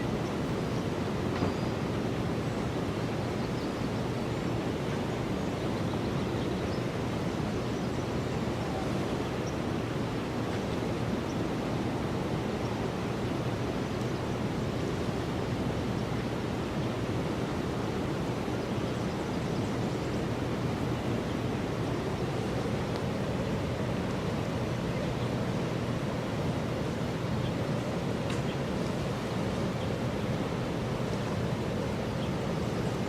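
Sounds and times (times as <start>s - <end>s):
steady wind: 0.0s - 33.0s.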